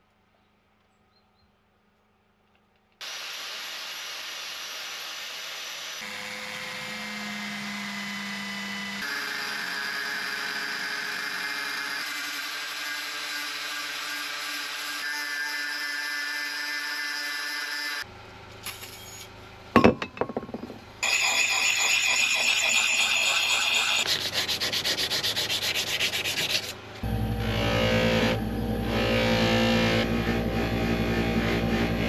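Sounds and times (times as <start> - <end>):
power tool motor running: 3.0 - 12.4, 27.0 - 32.0
sanding on steel axe head: 21.0 - 26.8.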